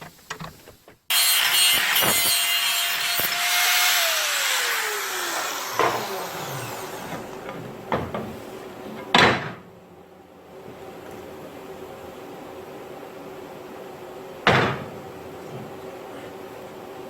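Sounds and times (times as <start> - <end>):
power tool spinning down: 1.1 - 7.6.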